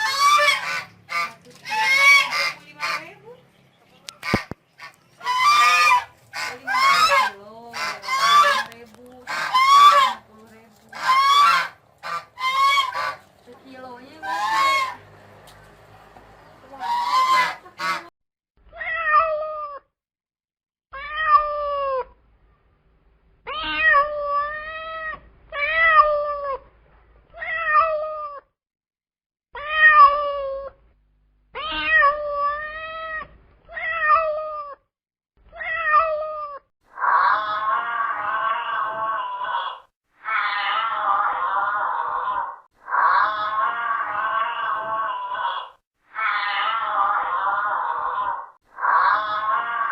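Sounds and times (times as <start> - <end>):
cat meowing: 23.5 - 26.6, 27.4 - 28.4, 31.6 - 34.8, 35.6 - 42.2, 42.9 - 47.5.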